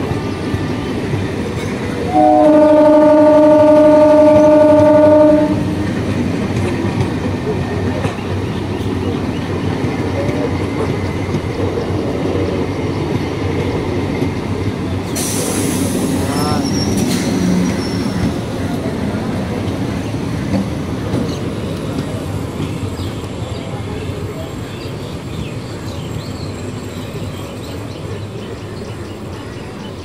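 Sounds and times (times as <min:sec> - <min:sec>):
train rumble and rail clatter: 0:00.0 - 0:30.0
train horn: 0:02.1 - 0:05.9
sudden hiss: 0:15.1 - 0:17.6.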